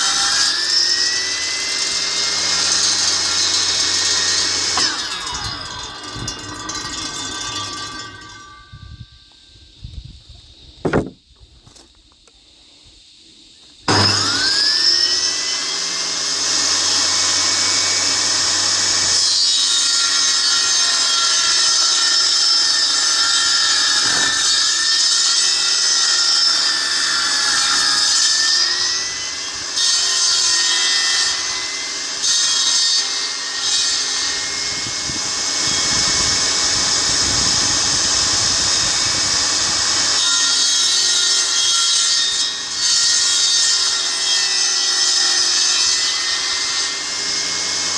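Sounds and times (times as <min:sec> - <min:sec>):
electric saw motor whine: 0:00.0 - 0:47.9
saw blade cutting wood hiss: 0:13.8 - 0:47.9.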